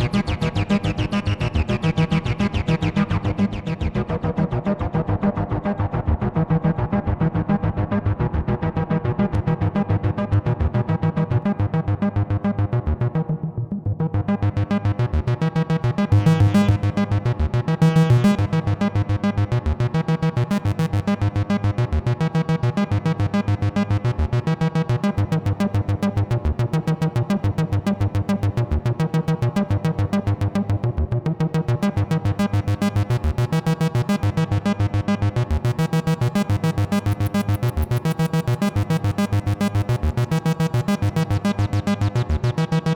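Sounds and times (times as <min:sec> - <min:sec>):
bass synthesizer arpeggio: 0:11.4 - 0:42.9.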